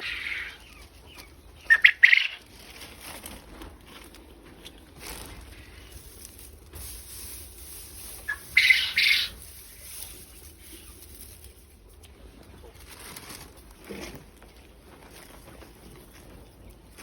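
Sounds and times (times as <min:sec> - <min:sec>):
quail flapping wings: 0:06.8 - 0:11.5.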